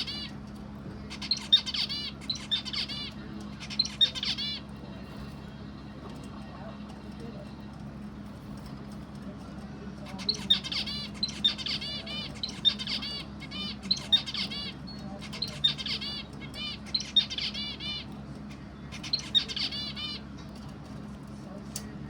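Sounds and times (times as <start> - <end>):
small bird chirping: 0.0 - 0.4, 1.1 - 5.2, 10.1 - 20.3
steady low hum: 0.0 - 22.0.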